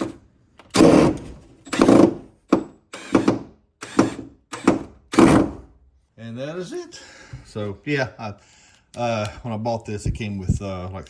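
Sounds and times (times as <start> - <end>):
drill driving screw in bursts: 0.7 - 5.7.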